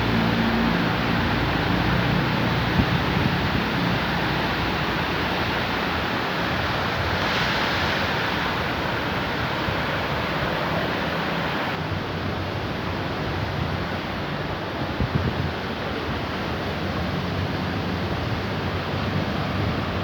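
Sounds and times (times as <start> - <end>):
heavy rain pouring: 0.0 - 11.9.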